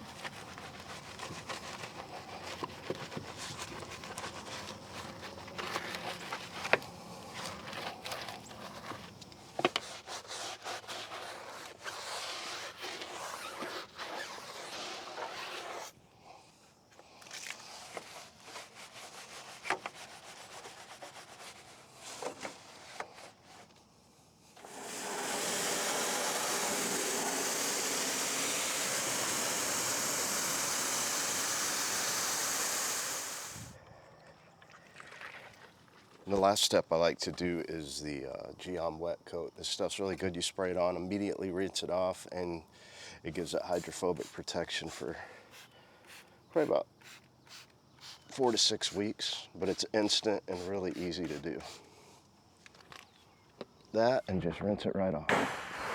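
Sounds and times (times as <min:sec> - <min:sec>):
brush scrubbing a tire: 0:00.0 - 0:15.9, 0:17.6 - 0:23.7, 0:24.6 - 0:33.8, 0:43.4 - 0:51.8
pressure washer spraying water: 0:24.6 - 0:33.8, 0:55.3 - 0:55.9.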